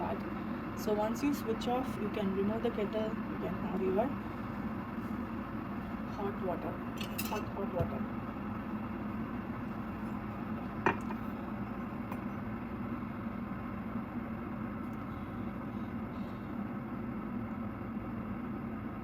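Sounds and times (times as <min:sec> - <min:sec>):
kettle boiling water: 0:00.0 - 0:19.0.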